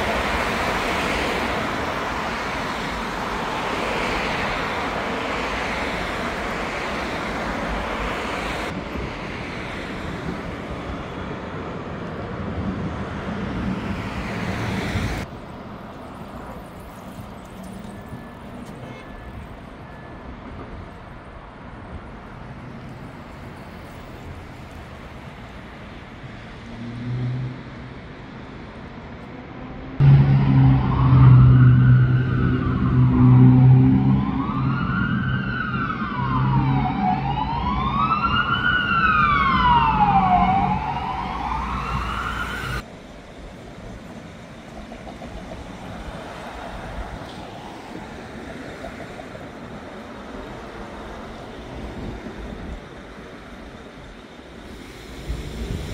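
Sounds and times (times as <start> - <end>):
low rumble of road traffic: 0.0 - 55.9
siren wailing: 30.0 - 42.8.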